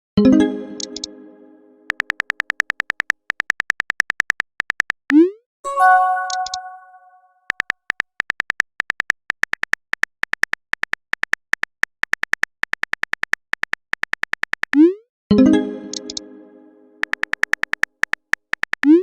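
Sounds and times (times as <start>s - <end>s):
keyboard typing ticks: 0.8s - 1.1s, 1.9s - 5.2s, 5.8s - 14.9s, 15.9s - 16.2s, 17.0s - 19.0s
chime: 5.7s - 7.2s.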